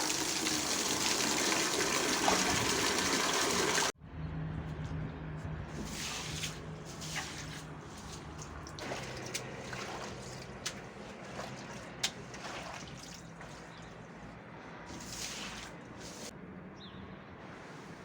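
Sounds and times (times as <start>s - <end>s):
water trickling and dripping: 0.0s - 3.9s, 5.9s - 13.9s.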